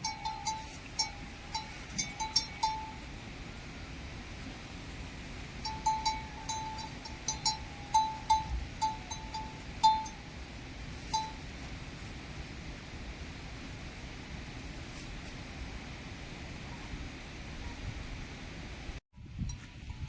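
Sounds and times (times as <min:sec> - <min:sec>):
livestock bell clanking: 0:00.0 - 0:03.2, 0:05.6 - 0:11.6.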